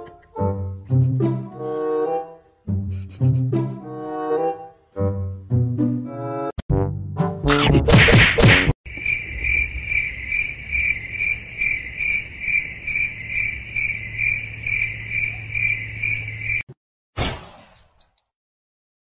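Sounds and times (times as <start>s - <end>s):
cricket chirping: 8.9s - 16.7s.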